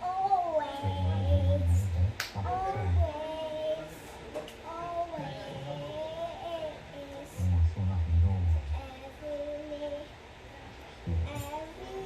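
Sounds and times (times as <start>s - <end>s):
person singing: 0.0s - 3.9s, 11.1s - 12.0s.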